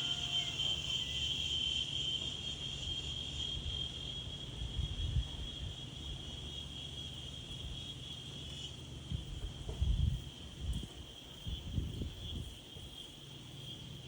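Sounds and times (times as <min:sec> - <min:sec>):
high-pitched insect chirring: 0:00.0 - 0:08.8
low wind rumble: 0:09.1 - 0:13.0.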